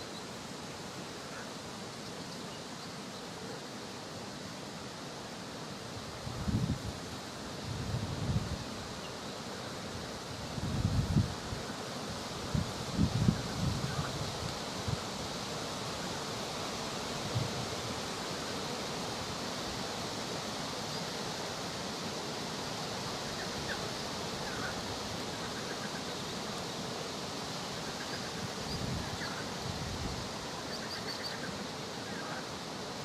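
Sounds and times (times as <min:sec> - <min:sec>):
rushing outdoor background noise: 0:00.0 - 0:33.0.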